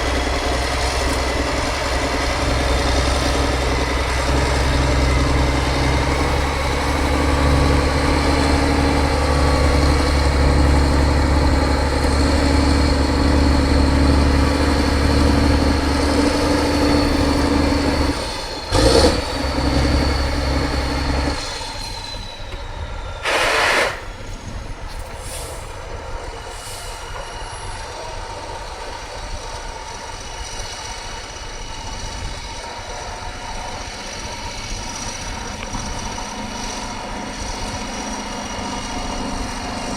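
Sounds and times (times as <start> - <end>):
truck diesel engine running: 0.0 - 39.9
air hiss bursts: 23.2 - 24.1.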